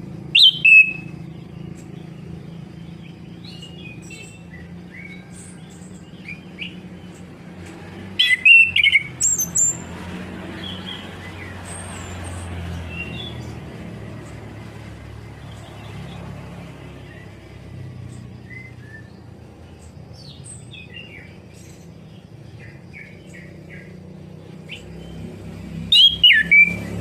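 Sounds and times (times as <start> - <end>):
thrush whistles and chirps: 0.1 - 13.6, 17.0 - 27.0.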